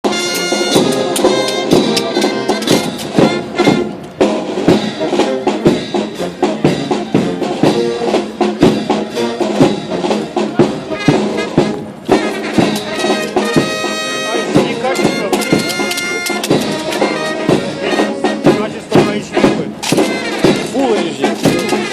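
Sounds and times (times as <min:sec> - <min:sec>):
brass instruments playing: 0:00.0 - 0:21.9
sharp drum strikes: 0:00.3 - 0:05.0, 0:18.4 - 0:21.9.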